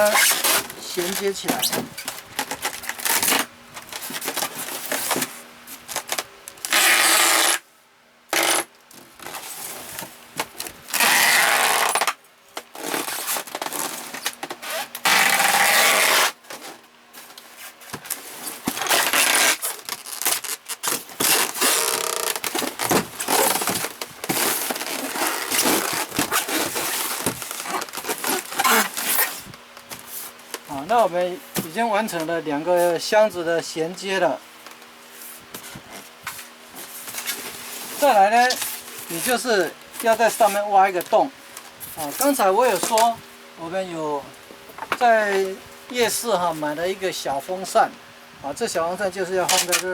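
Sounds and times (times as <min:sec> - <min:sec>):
packing tape pulled off roll: 0:00.0 - 0:07.6, 0:08.3 - 0:30.7, 0:49.5 - 0:49.9
tape crackling and tapping: 0:05.9 - 0:07.6, 0:17.3 - 0:30.7.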